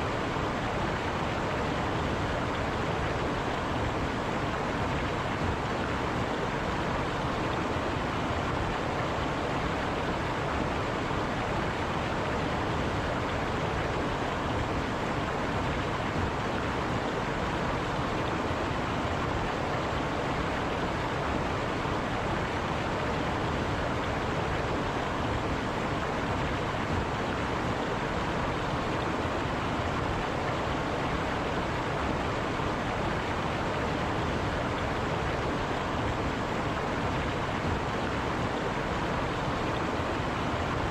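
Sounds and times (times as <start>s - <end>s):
river flowing over rocks: 0.0s - 40.9s.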